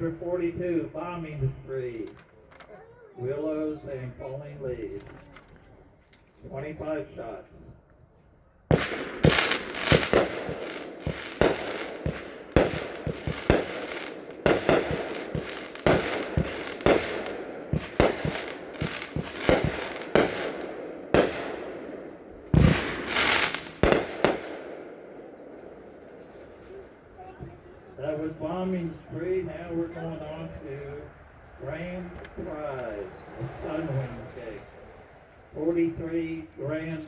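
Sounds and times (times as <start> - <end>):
fireworks bangs: 8.7 - 27.9
fireworks rushing noise: 8.7 - 28.9.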